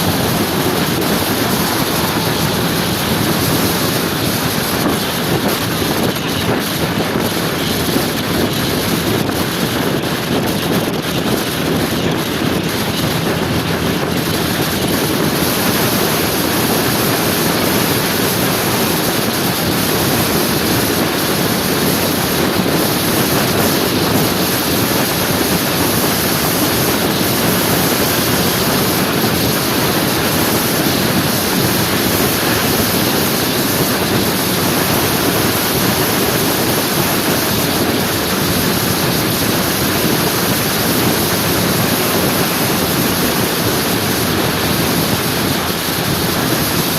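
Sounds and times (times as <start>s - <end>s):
scooter road noise: 0.0s - 46.9s
wind buffeting microphone: 0.0s - 46.9s
wind rushing: 0.0s - 46.9s.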